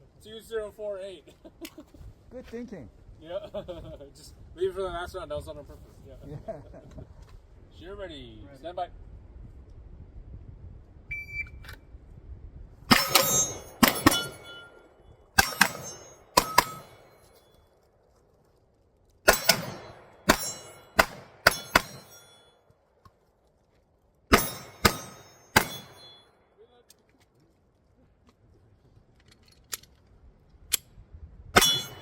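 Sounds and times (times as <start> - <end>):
shot timer beep: 11.1 - 11.6
pistol shots: 12.9 - 14.8, 15.4 - 17.1, 19.2 - 22.4, 24.3 - 26.2, 31.6 - 32.0
steel targets ringing: 12.9 - 17.6, 19.3 - 22.6, 24.3 - 26.4, 31.6 - 32.0.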